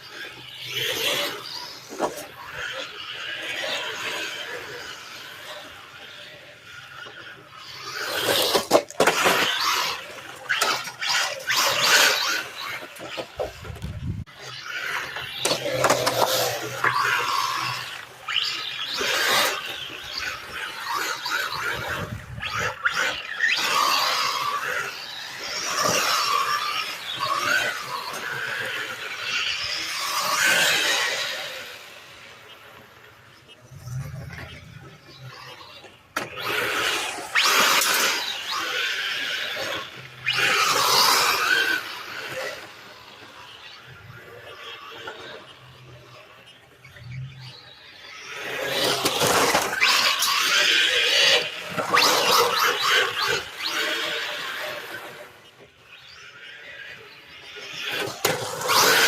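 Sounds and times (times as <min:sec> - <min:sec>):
rc car motor whining: 0:00.0 - 0:59.0
tyres and wind rushing: 0:11.5 - 0:14.6, 0:21.4 - 0:23.5.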